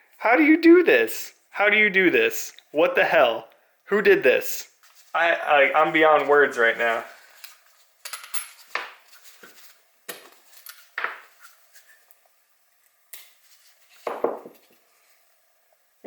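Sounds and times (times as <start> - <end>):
metal tools clinking: 8.0 - 8.7.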